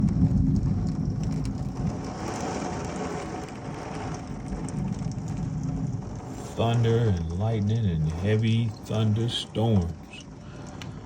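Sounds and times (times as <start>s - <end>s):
heavy rain pouring: 0.0s - 11.0s
low thunder rumble: 0.0s - 11.0s.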